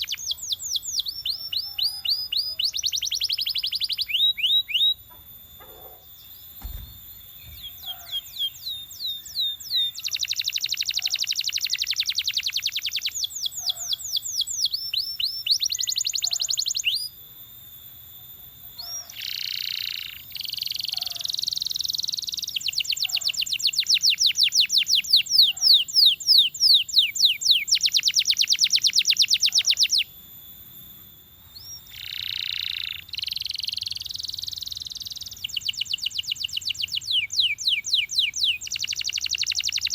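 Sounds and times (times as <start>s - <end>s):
canary singing rapid trills: 0.0s - 17.2s, 18.4s - 39.9s
low thump: 6.6s - 7.7s.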